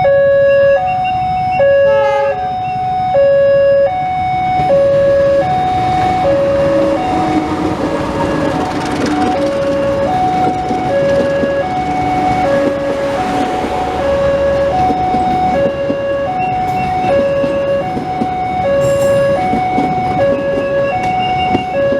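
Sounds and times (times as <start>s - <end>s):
electronic two-tone alarm: 0.0s - 21.9s
steady rushing noise: 5.5s - 20.3s.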